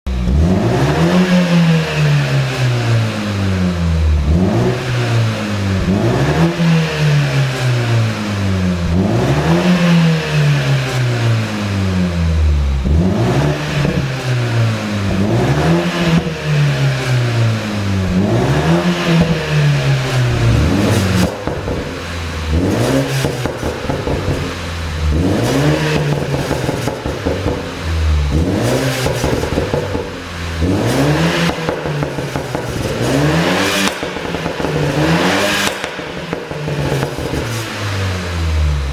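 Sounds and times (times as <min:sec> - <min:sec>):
car engine revving: 0:00.0 - 0:38.9
exhaust pops and crackles: 0:18.0 - 0:37.9.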